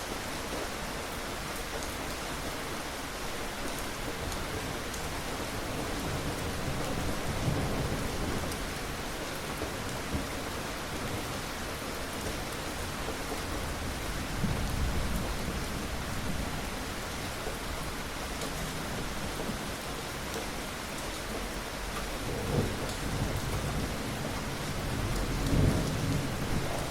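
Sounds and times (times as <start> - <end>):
steady rain falling: 0.0 - 26.9
low rumbles of thunder: 5.8 - 11.5, 12.9 - 17.3, 22.0 - 26.9.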